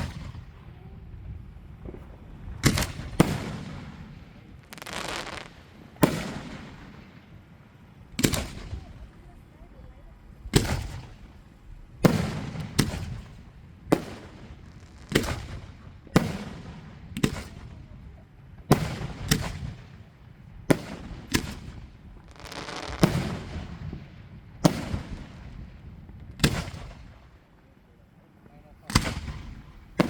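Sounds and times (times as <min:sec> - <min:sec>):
fireworks booming with echo: 0:01.8 - 0:07.2, 0:12.0 - 0:17.9, 0:18.7 - 0:27.2, 0:28.9 - 0:30.0.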